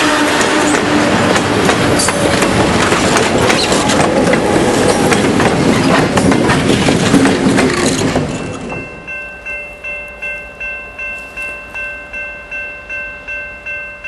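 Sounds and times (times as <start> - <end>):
train wheels clicking over rail joints: 0.0 - 9.0
rail rumbling: 0.0 - 14.0.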